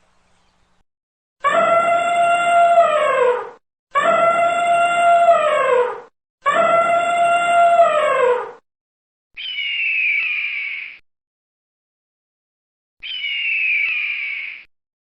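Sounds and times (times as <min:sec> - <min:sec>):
dog howling: 0:01.4 - 0:08.6.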